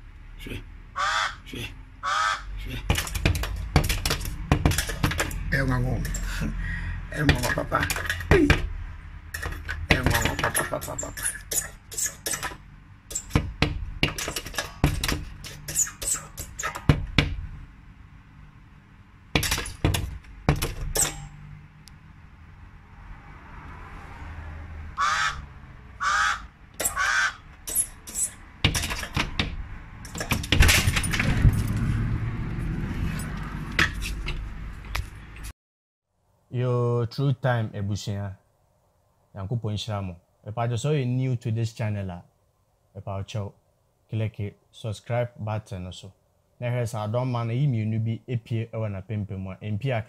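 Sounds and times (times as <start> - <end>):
harsh bird calls: 1.0 - 2.8, 25.0 - 27.5
knocks and clatters: 2.8 - 6.3, 7.2 - 17.5, 19.3 - 21.4, 26.8 - 32.1, 33.0 - 35.5.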